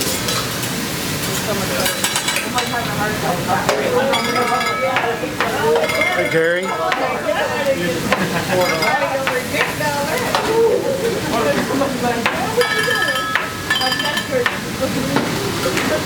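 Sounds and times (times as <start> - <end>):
food sizzling on a griddle: 0.0 - 10.6
background chatter: 1.0 - 16.0.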